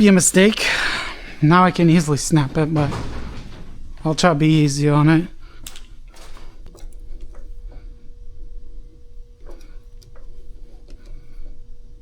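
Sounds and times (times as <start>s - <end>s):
faint hum: 0.0s - 12.0s
hand tap clicking and creaking: 1.8s - 8.0s.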